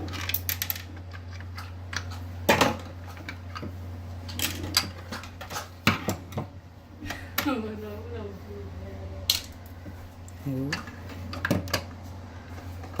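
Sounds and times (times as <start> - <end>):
clicks and knocks of small parts: 0.0 - 3.7, 4.3 - 5.7
steady low hum: 0.0 - 13.0.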